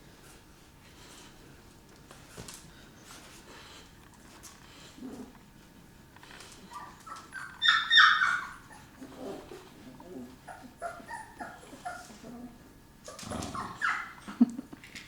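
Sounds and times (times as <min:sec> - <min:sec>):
dog whimpering and yelping: 0:06.6 - 0:14.3.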